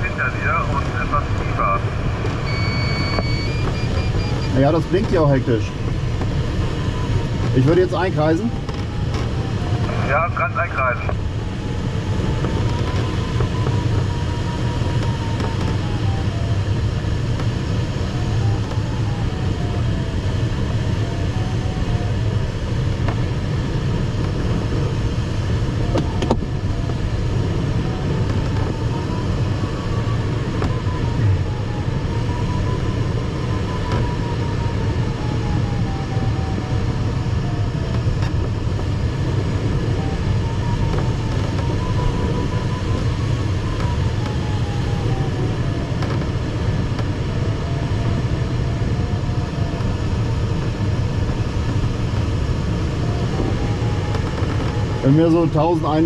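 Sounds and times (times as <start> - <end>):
cockpit airflow noise: 0.0 - 22.0, 22.7 - 55.7
variometer tone wandering in pitch: 2.1 - 5.0, 25.9 - 38.3, 39.7 - 46.0.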